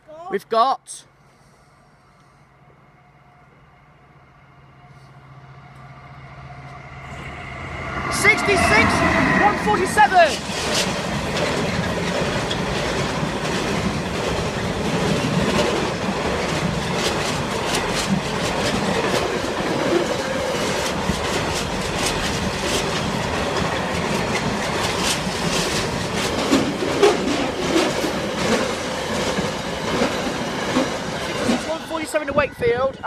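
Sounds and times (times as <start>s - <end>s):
freight train wagons rumbling: 3.5s - 33.0s
wheels clickety-clack on rail joints: 6.6s - 33.0s.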